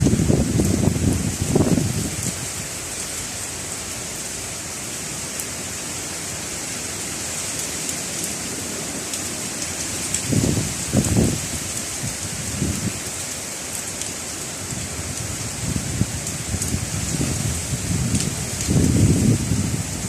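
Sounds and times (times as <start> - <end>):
wind buffeting microphone: 0.0 - 2.6, 10.1 - 13.1, 14.6 - 20.0
heavy rain pouring: 0.0 - 20.0.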